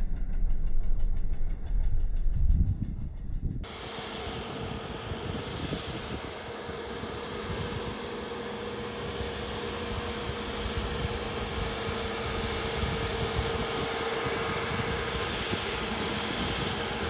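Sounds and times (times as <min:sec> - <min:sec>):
airliner engines whining: 0:03.6 - 0:17.0.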